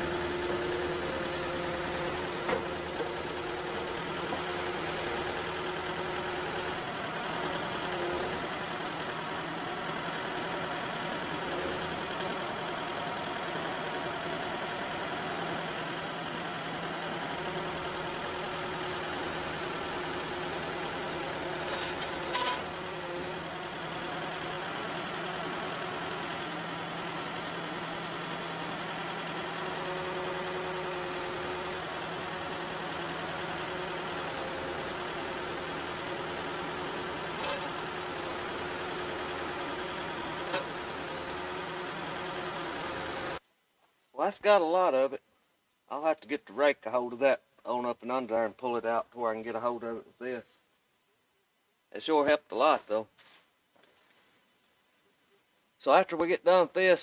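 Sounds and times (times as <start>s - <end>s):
diesel engine running: 0.0s - 43.4s
metal clanks: 21.7s - 22.7s.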